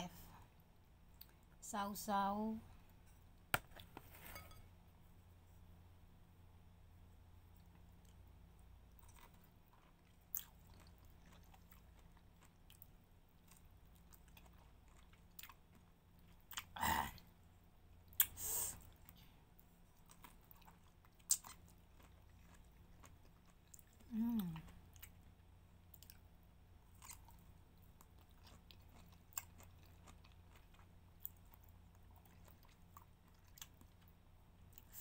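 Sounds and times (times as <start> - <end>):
person biting and chewing: 20.1 - 23.1.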